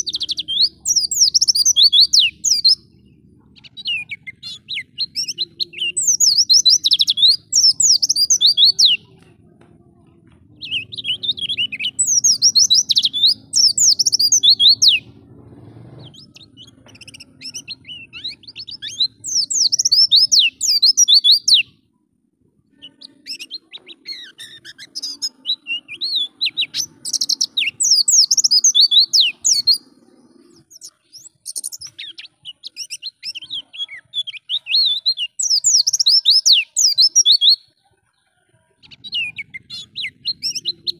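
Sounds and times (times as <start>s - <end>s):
bird twittering: 0.0s - 9.2s, 10.6s - 21.8s, 22.7s - 37.8s, 38.8s - 40.9s
faint low hum: 2.4s - 7.8s.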